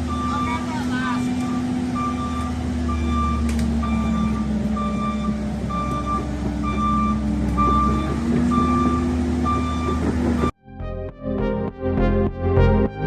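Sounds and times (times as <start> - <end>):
high travel alarm beeps: 0.0 - 0.7, 1.9 - 10.6
excavator diesel engine running: 0.0 - 10.6.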